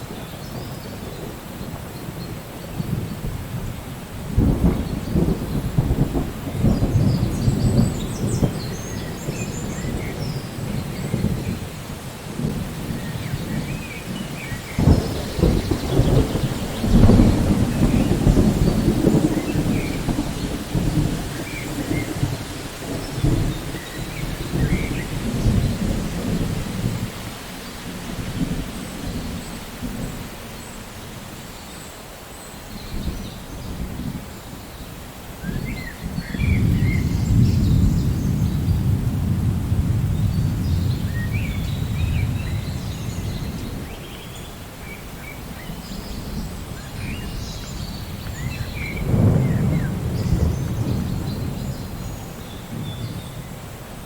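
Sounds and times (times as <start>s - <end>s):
thunder rumbling: 0.0s - 31.5s, 35.2s - 54.0s
rain falling: 0.0s - 54.0s.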